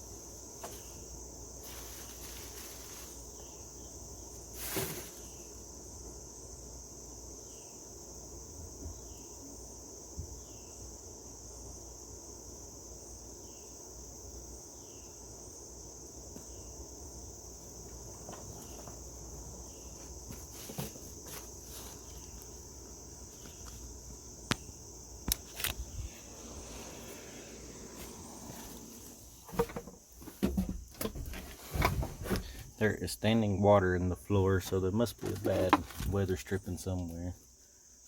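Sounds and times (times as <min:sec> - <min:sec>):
insects chirring: 0:00.0 - 0:38.0
handling clicks and knocks: 0:29.4 - 0:32.7, 0:35.1 - 0:36.2.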